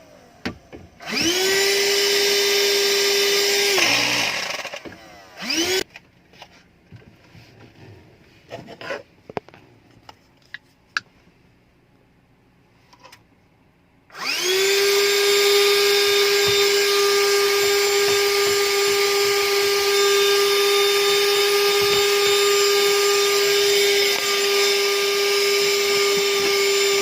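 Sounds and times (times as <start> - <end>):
car vacuum cleaner motor whining: 0.0 - 5.9, 14.2 - 27.0.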